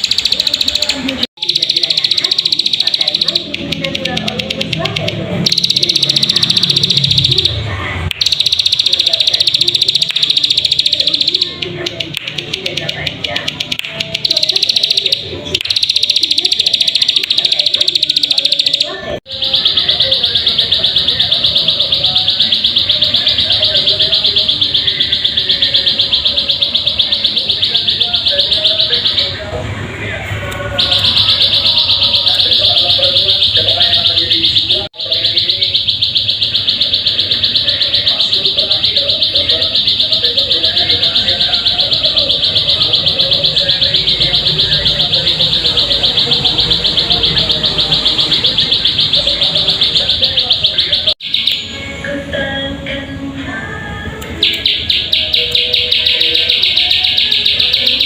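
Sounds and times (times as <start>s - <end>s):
bird singing a rapid trill: 0.0s - 29.4s, 30.8s - 51.8s, 54.4s - 58.0s
faint bird chatter: 19.3s - 26.3s.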